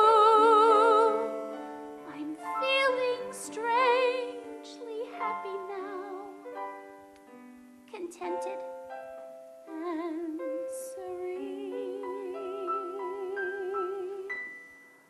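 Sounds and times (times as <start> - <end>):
woman singing with vibrato: 0.0 - 1.4, 2.0 - 6.5, 7.9 - 8.7, 9.7 - 14.5.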